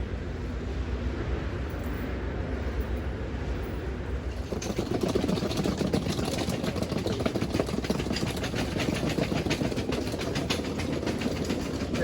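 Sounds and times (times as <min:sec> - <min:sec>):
fast clicking rattle: 0:04.3 - 0:12.0.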